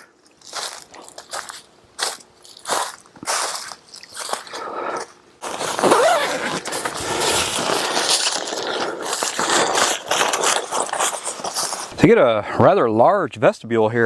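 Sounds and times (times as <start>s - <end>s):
tent fabric rustling: 5.4s - 12.0s.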